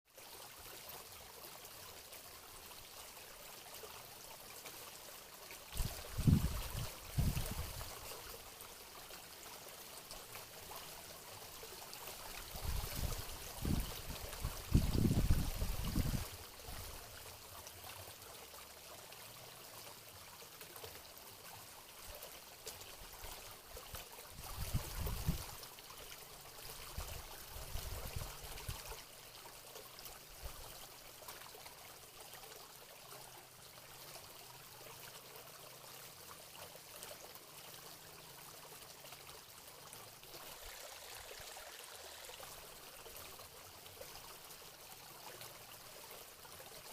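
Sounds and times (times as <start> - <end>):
water running: 40.3 - 43.3.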